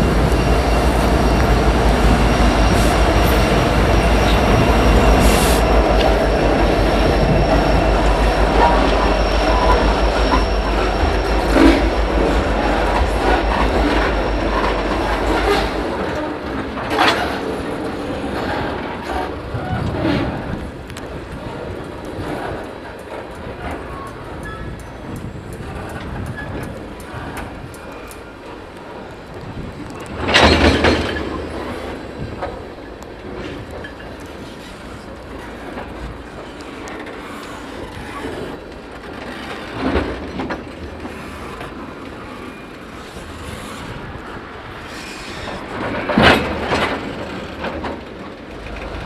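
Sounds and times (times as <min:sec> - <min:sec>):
train knock: 0:00.0 - 0:16.2
freight train rumbling: 0:00.0 - 0:49.0
wheels clicking over rail joints: 0:00.0 - 0:49.0.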